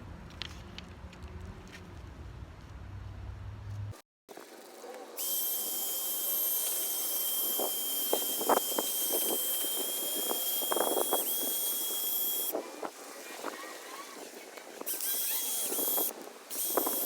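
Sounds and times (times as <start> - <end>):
power drill sanding plastic: 5.2 - 12.6, 14.8 - 17.0.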